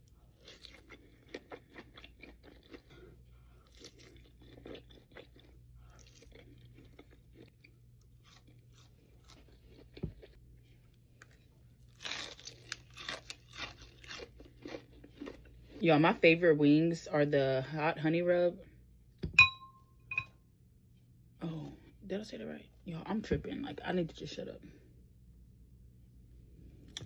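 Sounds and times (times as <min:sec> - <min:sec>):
crunchy chewing: 0:00.0 - 0:15.8.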